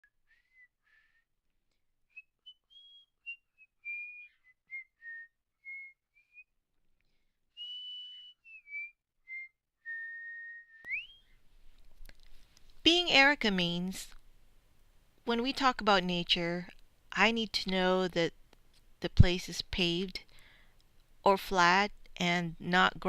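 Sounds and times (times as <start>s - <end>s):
person whistling a melody: 2.1s - 6.5s, 7.5s - 11.3s.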